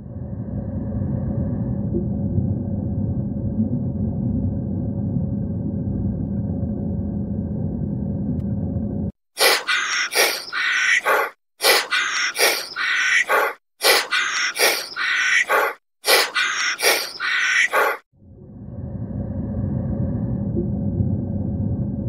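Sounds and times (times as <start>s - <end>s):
low rumble: 0.0s - 9.2s, 18.2s - 22.0s
bird call: 9.4s - 18.0s.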